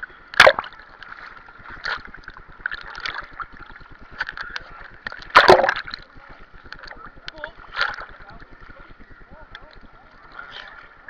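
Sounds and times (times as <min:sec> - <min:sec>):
pool water sloshing and splashing: 0:00.0 - 0:11.0
loud splashes: 0:05.3 - 0:06.0.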